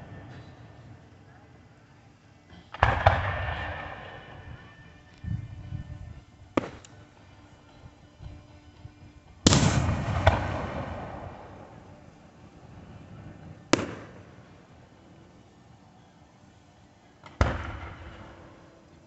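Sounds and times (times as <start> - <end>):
rumbling echo: 2.5 - 14.7, 17.2 - 18.7
fireworks bursting: 2.6 - 19.0.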